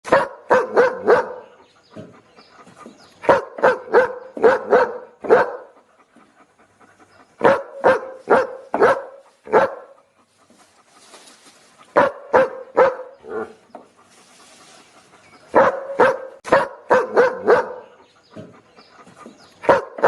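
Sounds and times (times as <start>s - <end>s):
dog barking: 0.0s - 1.6s, 3.2s - 5.8s, 7.4s - 10.0s, 11.9s - 13.5s, 15.5s - 18.1s, 19.6s - 20.0s.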